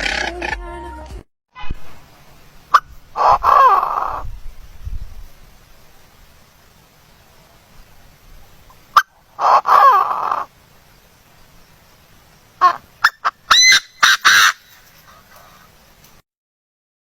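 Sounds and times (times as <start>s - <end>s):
bird harsh call: 2.7s - 4.2s, 8.7s - 10.5s, 12.6s - 15.8s.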